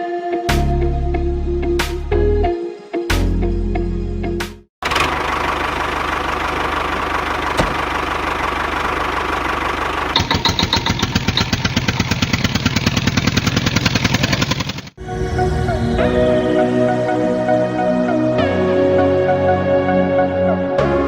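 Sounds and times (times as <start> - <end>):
small engine putter: 4.8 - 15.0.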